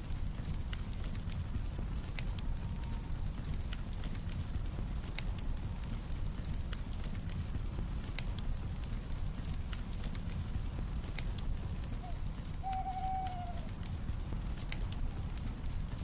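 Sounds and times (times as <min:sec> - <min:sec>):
campfire crackling: 0:00.0 - 0:16.0
crickets trilling: 0:00.0 - 0:16.0
owl hooting: 0:12.0 - 0:13.8.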